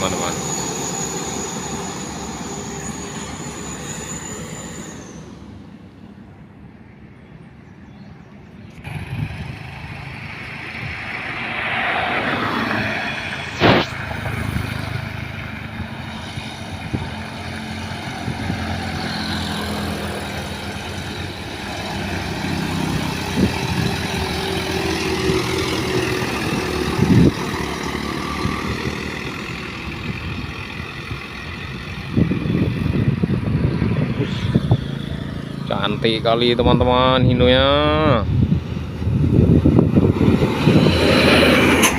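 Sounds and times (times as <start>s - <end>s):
diesel truck engine straining: 8.8s - 41.9s.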